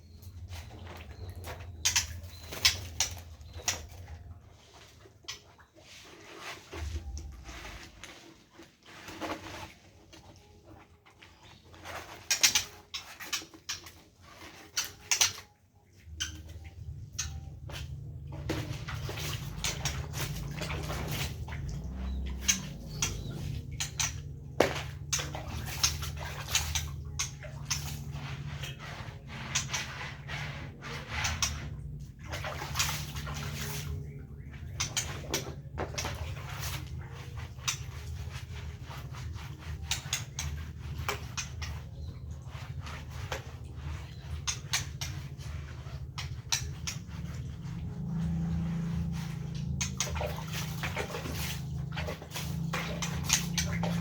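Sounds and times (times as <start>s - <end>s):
knocks and scraping clatter: 0.0s - 54.0s
water splashing and sloshing: 0.0s - 54.0s
low steady hum: 13.7s - 54.0s.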